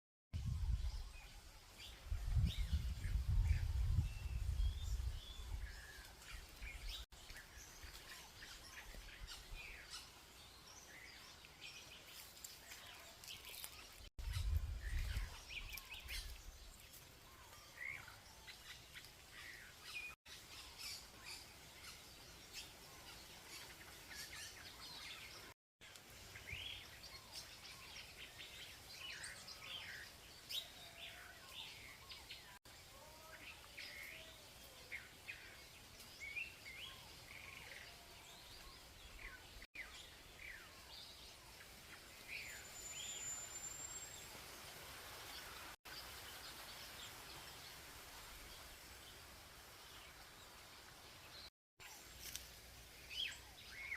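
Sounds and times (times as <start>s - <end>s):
birds chirping and singing: 26.4s - 44.3s, 53.0s - 53.9s.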